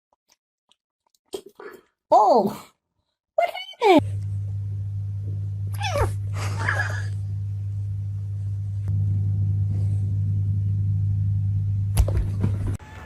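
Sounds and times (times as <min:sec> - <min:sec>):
low mechanical hum: 0:04.0 - 0:13.0.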